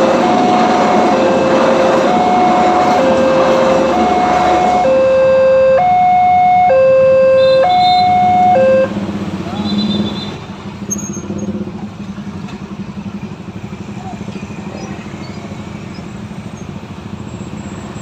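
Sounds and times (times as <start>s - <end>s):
level crossing alarm: 0.0s - 9.0s
passing train: 0.0s - 18.0s.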